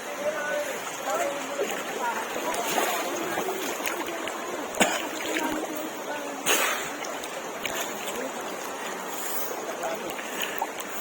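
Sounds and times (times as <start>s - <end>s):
faint voices: 0.0s - 11.0s
people splashing in water: 0.0s - 11.0s
running stream water: 0.0s - 11.0s.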